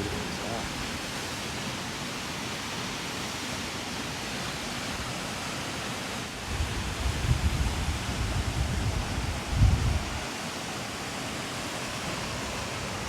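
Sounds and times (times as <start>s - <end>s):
waterfall rushing: 0.0s - 13.0s
wind buffeting microphone: 6.4s - 10.3s.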